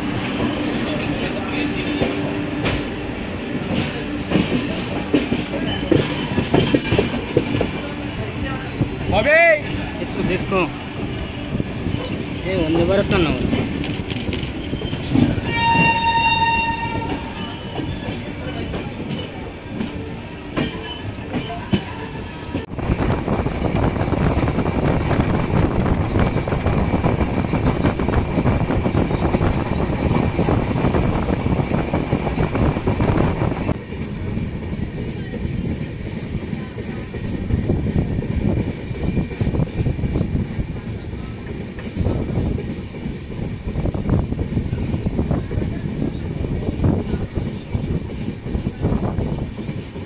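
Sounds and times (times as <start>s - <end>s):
train wheels clattering on rails: 0.0s - 22.8s, 23.6s - 50.0s
train horn: 15.4s - 17.4s.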